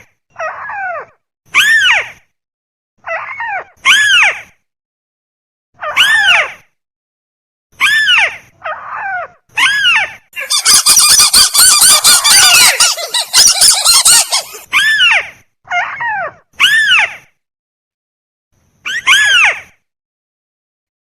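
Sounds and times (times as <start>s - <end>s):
crake calls: 10.4s - 14.7s.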